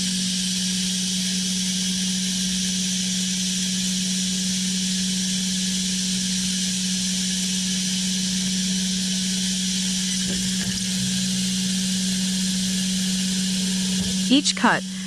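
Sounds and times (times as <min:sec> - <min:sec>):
wood-sawing machine running: 0:07.8 - 0:15.0.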